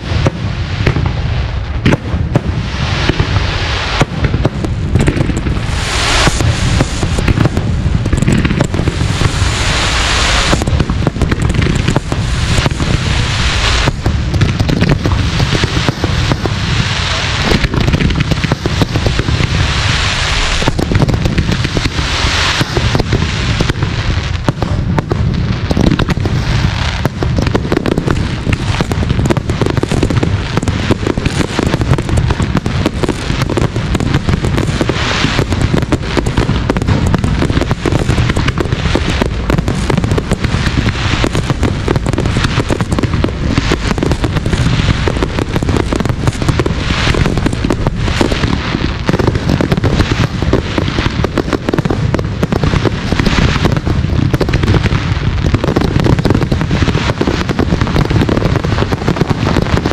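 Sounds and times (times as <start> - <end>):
firework shells bursting: 1.8 - 25.1.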